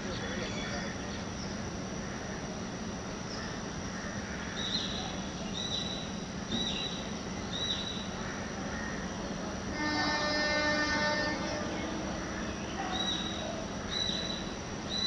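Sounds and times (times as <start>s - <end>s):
outdoor background hum: 0.0s - 15.0s
bird short high calls: 9.8s - 15.0s.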